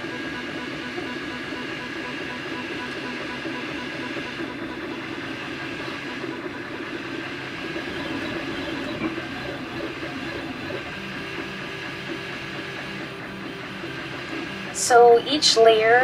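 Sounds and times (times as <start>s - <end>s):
stepper motors whining: 4.2s - 15.9s.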